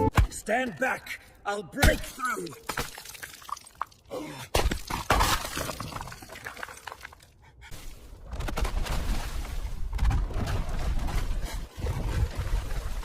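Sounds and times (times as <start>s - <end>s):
ice cracking and shattering: 4.6s - 7.2s.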